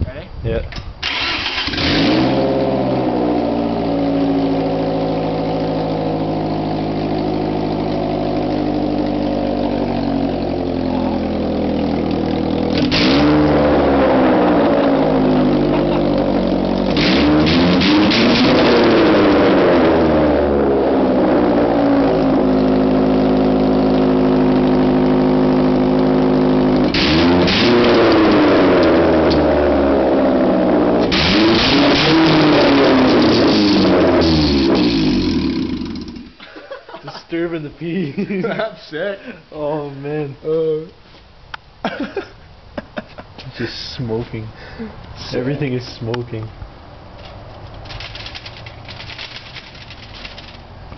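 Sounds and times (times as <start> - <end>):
car engine idling and revving: 1.0 - 36.4, 46.6 - 50.9.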